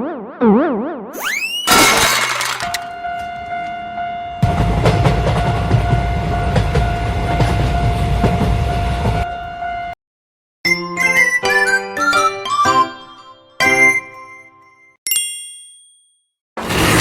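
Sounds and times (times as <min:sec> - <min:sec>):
steady high tone: 0:01.2 - 0:03.5
wheels clacking over rail joints: 0:01.7 - 0:03.7, 0:16.6 - 0:17.0
train rumble: 0:04.4 - 0:09.3.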